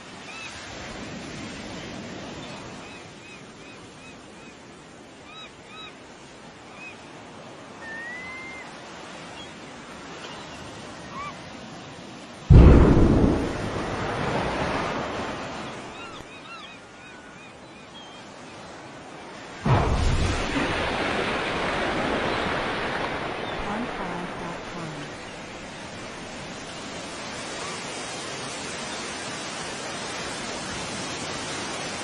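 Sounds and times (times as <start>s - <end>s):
deep rumble: 12.5s - 15.1s
loud explosion blast: 12.5s - 15.5s, 19.7s - 22.6s.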